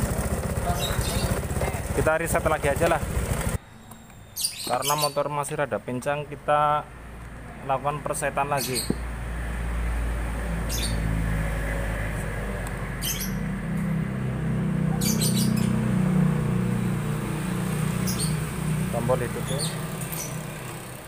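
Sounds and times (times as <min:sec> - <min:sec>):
motorcycle engine idling: 0:00.0 - 0:03.6
birds chirping: 0:00.0 - 0:09.2, 0:10.4 - 0:21.0.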